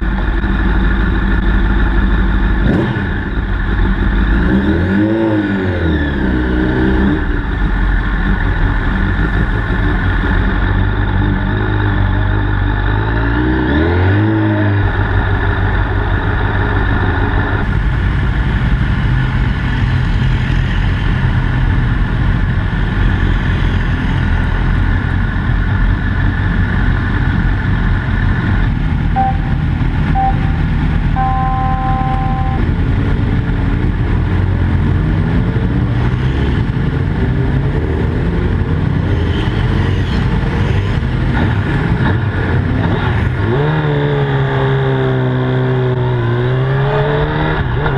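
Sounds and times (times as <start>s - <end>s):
motorcycle engine at speed: 0.0s - 47.9s
short electronic beeps: 29.2s - 32.8s.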